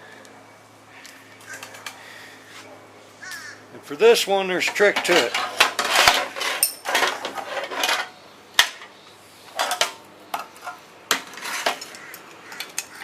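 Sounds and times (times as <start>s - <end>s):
metal tools clinking and scraping: 4.6s - 8.9s, 9.6s - 13.0s.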